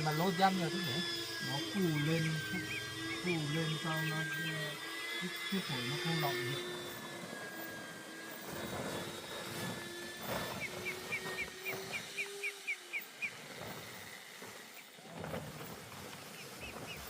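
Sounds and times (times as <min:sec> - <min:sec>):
engine hum: 0:00.0 - 0:17.0
bird chirping: 0:01.4 - 0:06.5, 0:10.4 - 0:13.4.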